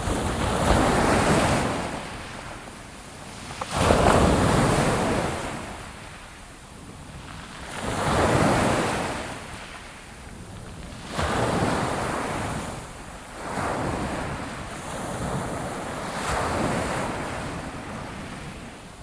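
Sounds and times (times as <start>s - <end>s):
ocean waves breaking on shore: 0.0s - 19.0s.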